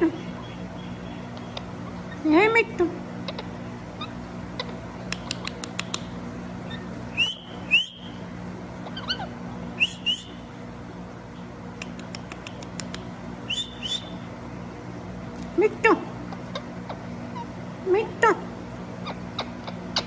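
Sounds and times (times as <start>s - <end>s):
rapid faint clicks: 5.0s - 6.4s, 11.8s - 13.1s
parrot whistled chirps: 6.7s - 8.2s, 8.9s - 10.4s, 13.5s - 14.2s.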